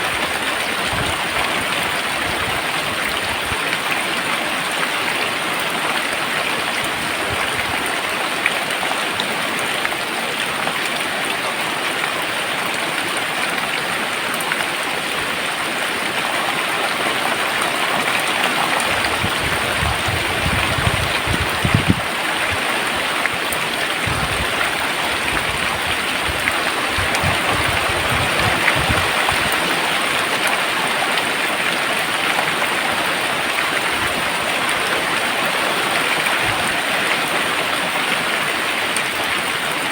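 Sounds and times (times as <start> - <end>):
heavy rain pouring: 0.0 - 39.9
low rumbling: 18.9 - 22.6, 24.0 - 29.6.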